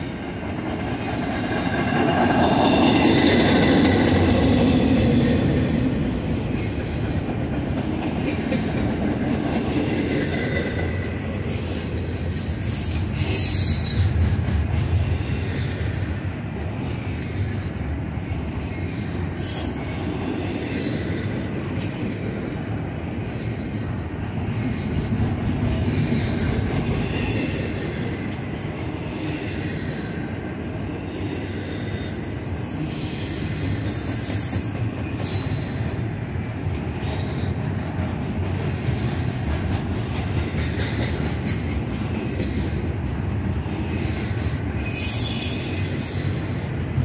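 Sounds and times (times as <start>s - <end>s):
train wheels rumbling on rail: 0.0s - 47.0s
high-pitched wheel squeal: 44.8s - 46.0s.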